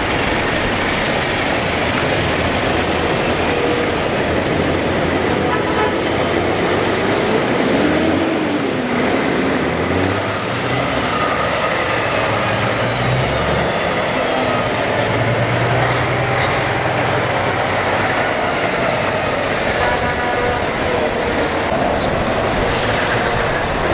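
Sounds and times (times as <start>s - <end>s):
trucks driving past: 0.0s - 23.9s
air horn blowing: 3.2s - 6.8s, 18.2s - 23.9s.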